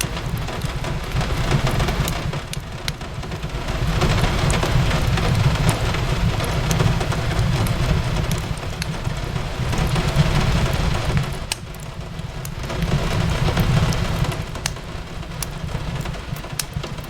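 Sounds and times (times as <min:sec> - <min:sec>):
fireplace crackling: 0:00.0 - 0:17.0
rain on a window: 0:00.0 - 0:17.0.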